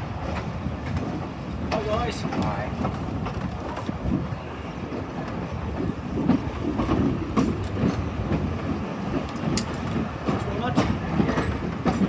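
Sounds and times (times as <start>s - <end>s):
train rumbling on track: 0.0s - 12.0s
wheels clicking over rails: 0.0s - 12.0s.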